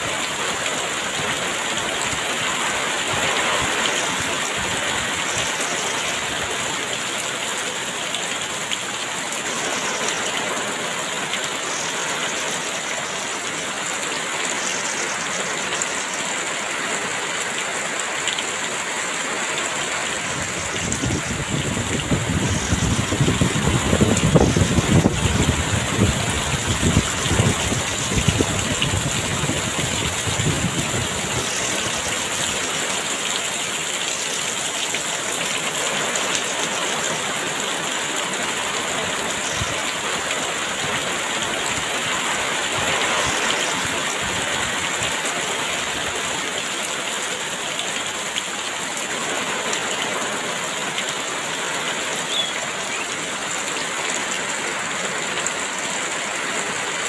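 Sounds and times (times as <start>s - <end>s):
heavy rain falling: 0.0s - 57.0s
gusty wind rumble: 20.2s - 31.9s.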